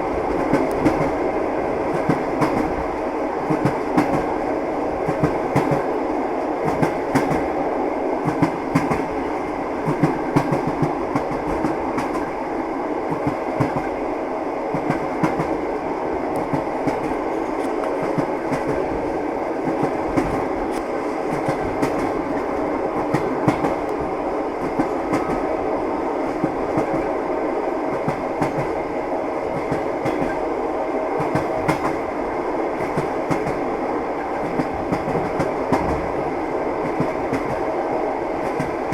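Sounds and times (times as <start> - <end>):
train wheels clattering over rail joints: 29.5 - 30.4.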